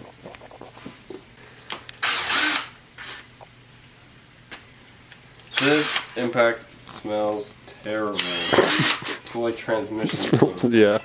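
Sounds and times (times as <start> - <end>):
impact gun bursts: 5.5 - 6.2.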